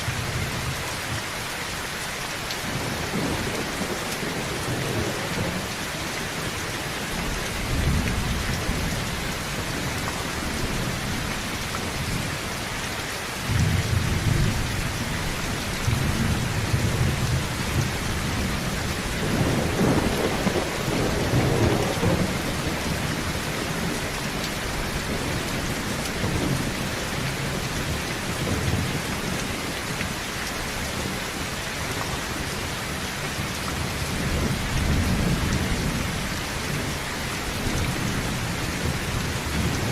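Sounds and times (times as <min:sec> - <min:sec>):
heavy rain on a tin roof: 0:00.0 - 0:39.9
thunder rumbling: 0:13.5 - 0:29.4.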